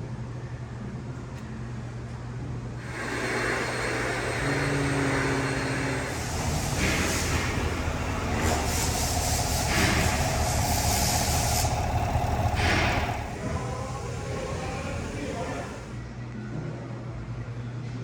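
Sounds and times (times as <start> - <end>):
steady whine: 2.8 - 16.1
vehicle engine running: 2.9 - 16.0
short hissing bursts: 6.1 - 15.9.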